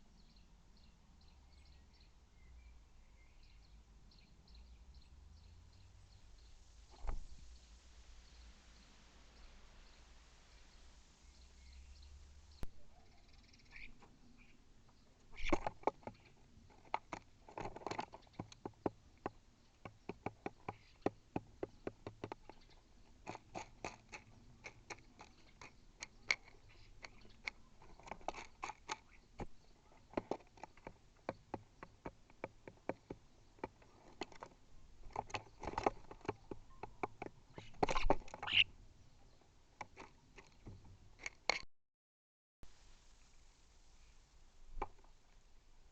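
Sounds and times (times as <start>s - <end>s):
bird pecking at seed: 15.2s - 38.7s.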